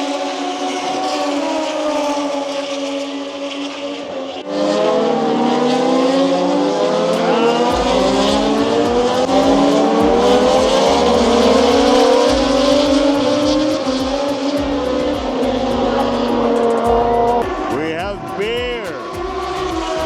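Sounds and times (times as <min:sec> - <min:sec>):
racing motorcycle engines: 0:00.0 - 0:20.0.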